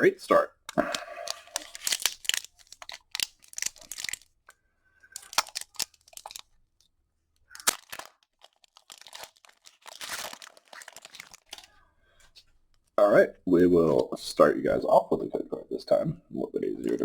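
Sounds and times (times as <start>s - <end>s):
foil wrapper crinkling and tearing: 0.8s - 4.4s, 5.1s - 6.6s, 7.5s - 11.8s.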